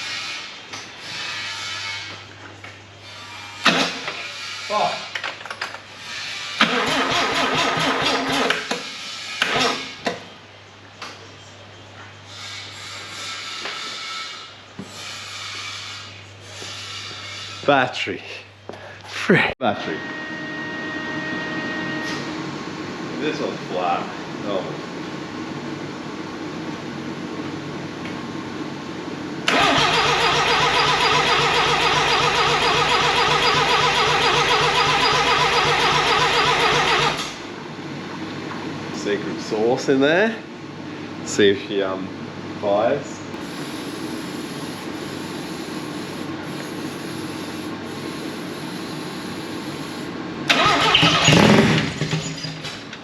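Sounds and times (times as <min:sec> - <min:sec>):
engine cranking on starter motor: 0:06.6 - 0:08.7, 0:29.4 - 0:37.4, 0:50.4 - 0:52.6
steady hum: 0:37.5 - 0:50.5.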